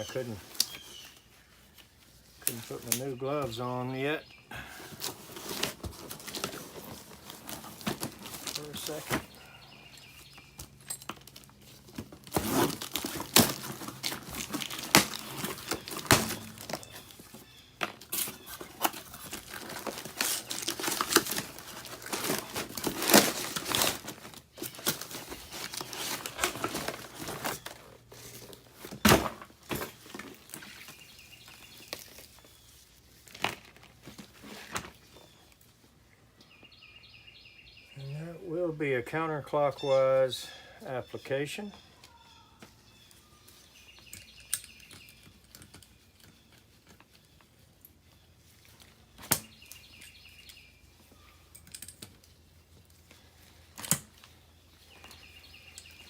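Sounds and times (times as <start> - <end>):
packaging crinkling and tearing: 4.9 - 9.4, 10.6 - 35.1.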